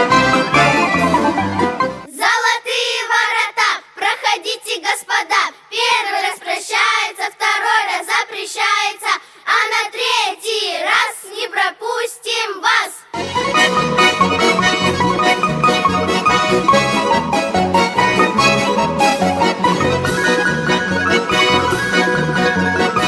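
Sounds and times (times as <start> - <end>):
instrumental music: 0.0 - 2.1, 13.2 - 23.0
children singing unaccompanied: 2.1 - 13.2.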